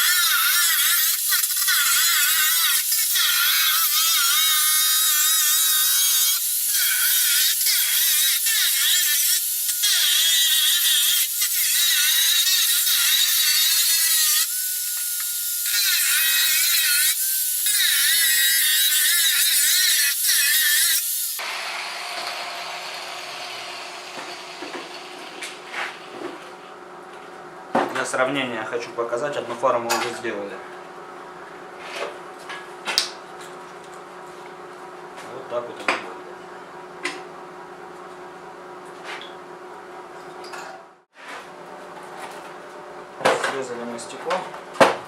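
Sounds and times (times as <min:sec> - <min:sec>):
angle grinder cutting plastic: 0:00.0 - 0:25.6.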